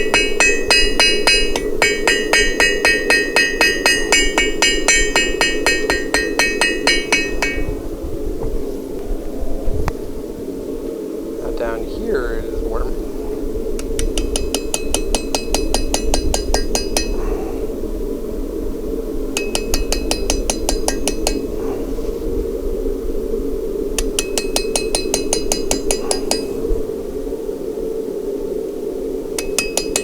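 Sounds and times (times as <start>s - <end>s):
hammer striking steel on anvil: 0.0s - 7.8s, 13.8s - 17.4s, 19.4s - 21.6s, 24.0s - 26.6s, 29.4s - 30.0s
steady low rumble: 0.0s - 27.4s.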